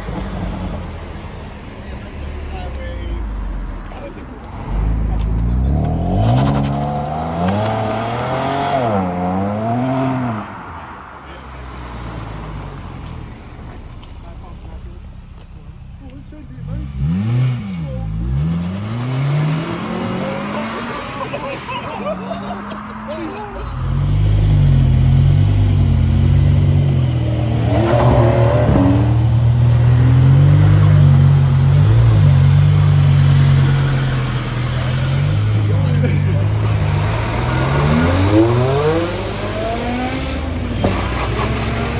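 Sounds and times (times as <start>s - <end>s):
sports car engine revving: 4.5s - 10.5s, 13.7s - 21.4s, 22.1s - 41.9s.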